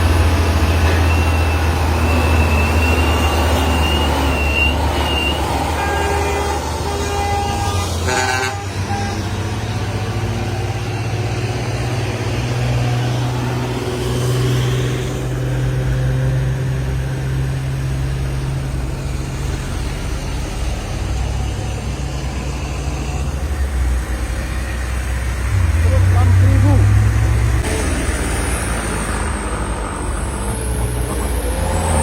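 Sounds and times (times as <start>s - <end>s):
heavy truck engine droning: 0.0s - 32.0s
multi-tone horn: 5.7s - 9.5s.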